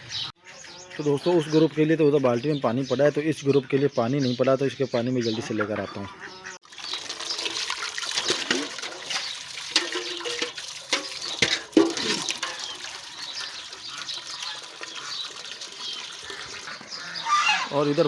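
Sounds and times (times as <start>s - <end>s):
water running into bucket: 6.6s - 18.0s.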